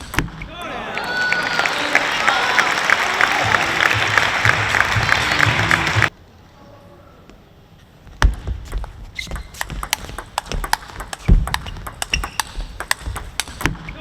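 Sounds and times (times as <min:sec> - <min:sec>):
table tennis ball clicking: 0:09.2 - 0:13.8.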